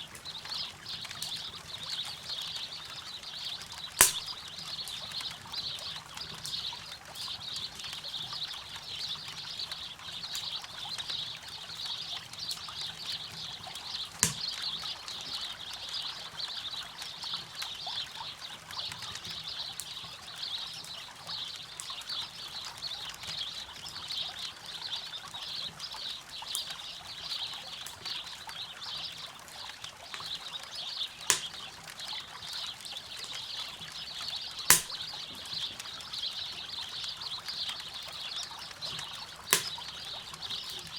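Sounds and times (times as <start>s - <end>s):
campfire crackling: 0.0s - 11.3s, 12.4s - 14.8s, 29.6s - 40.9s
loud fire pops: 4.0s - 4.4s, 14.2s - 14.6s, 31.3s - 31.7s, 34.7s - 35.2s, 39.5s - 39.9s.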